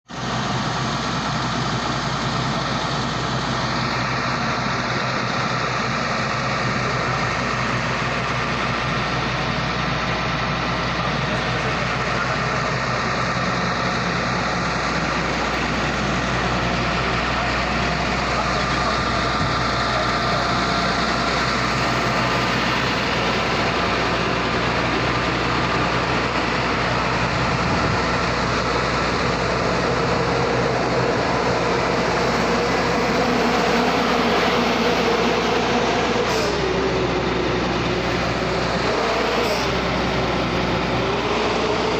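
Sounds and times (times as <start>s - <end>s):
diesel engine running steadily: 0.1s - 41.9s.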